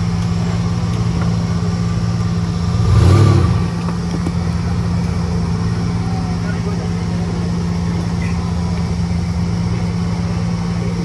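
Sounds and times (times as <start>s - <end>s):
off-road engine running: 0.0s - 11.0s
engine revving: 2.1s - 6.0s.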